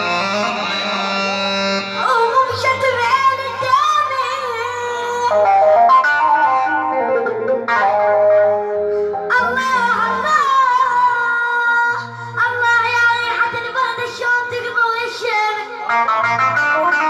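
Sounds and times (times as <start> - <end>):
backing music with bass line: 0.0 - 10.8
high solo voice singing: 9.1 - 15.2.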